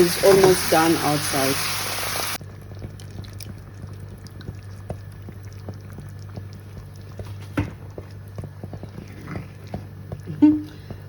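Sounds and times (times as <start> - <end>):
sauce bubbling and popping: 0.0 - 11.0
low steady hum: 2.4 - 11.0.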